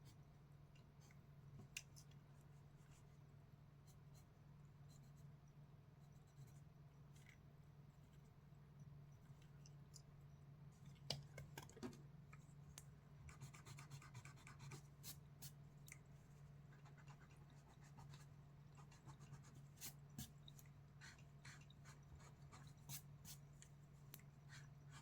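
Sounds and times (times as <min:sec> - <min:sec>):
pencil sketching on paper: 0:13.3 - 0:15.2, 0:16.7 - 0:20.4.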